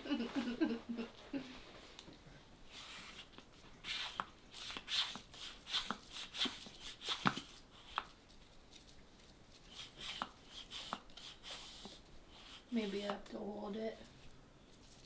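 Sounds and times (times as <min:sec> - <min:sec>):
balloon pump air puffs: 0:02.7 - 0:08.1, 0:09.6 - 0:13.2.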